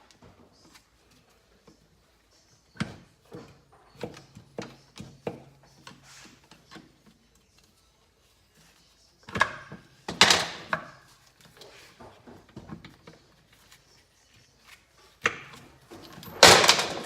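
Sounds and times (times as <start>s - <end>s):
metallic clatter: 15.9s - 17.0s.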